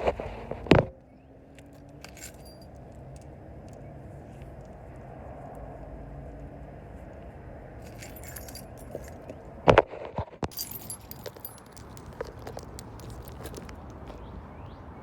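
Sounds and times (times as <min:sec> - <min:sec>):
keys jangling: 0:01.7 - 0:02.9, 0:07.8 - 0:09.4, 0:10.5 - 0:13.8.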